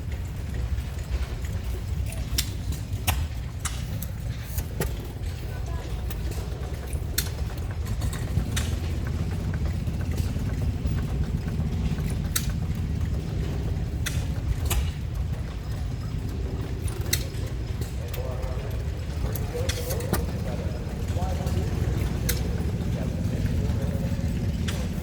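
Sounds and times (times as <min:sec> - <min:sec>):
small engines rumbling: 0:00.0 - 0:25.0
engine sharp pops: 0:14.0 - 0:15.1.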